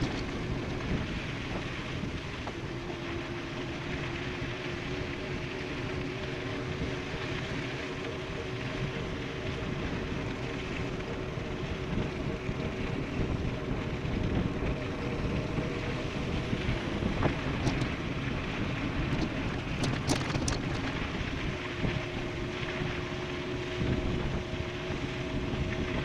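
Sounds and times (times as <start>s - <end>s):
faint steady whine: 0.0s - 26.0s
wind rushing over microphone: 0.0s - 26.0s.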